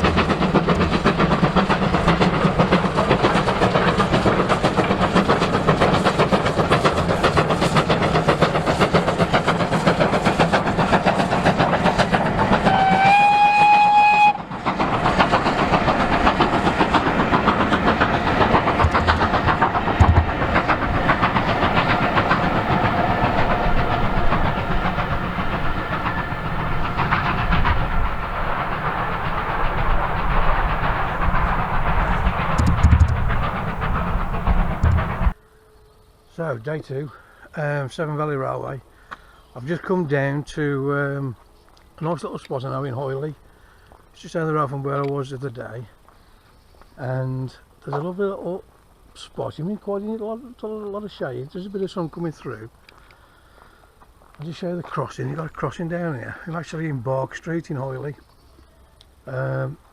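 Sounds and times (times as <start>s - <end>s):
steam locomotive exhaust beats: 0.0s - 35.6s
rail noise: 0.0s - 36.4s
steam whistle blast: 12.6s - 14.4s.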